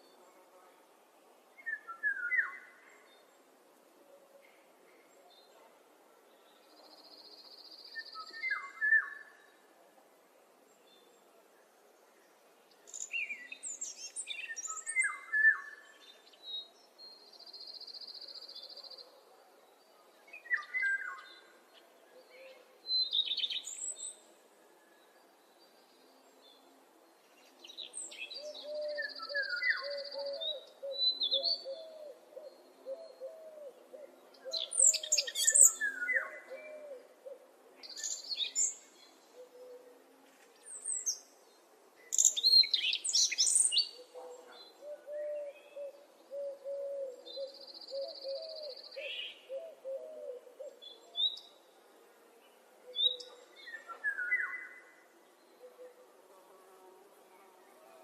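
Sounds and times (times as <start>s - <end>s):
songbird chirps and whistles: 1.6s - 2.7s
low hooting bird calls: 44.0s - 50.8s.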